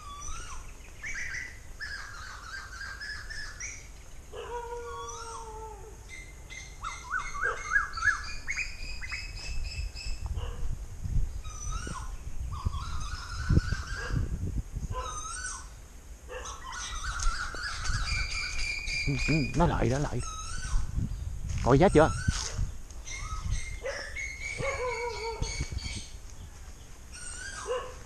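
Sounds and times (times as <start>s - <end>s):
birds calling and chirping: 0.0s - 28.0s.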